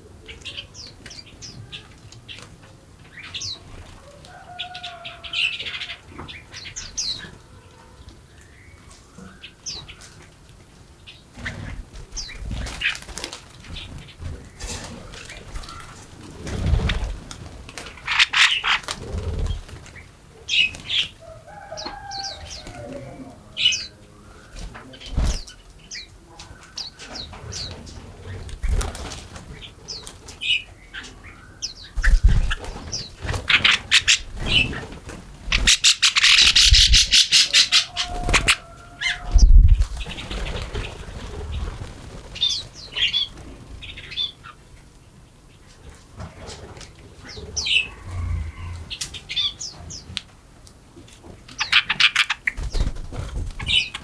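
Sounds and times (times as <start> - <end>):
birds chirping: 0.0 - 50.4, 51.0 - 54.0
wing flaps: 11.4 - 19.9, 24.6 - 25.5, 28.3 - 29.5, 32.0 - 43.6, 52.5 - 54.0
dull low thumps: 39.4 - 40.0.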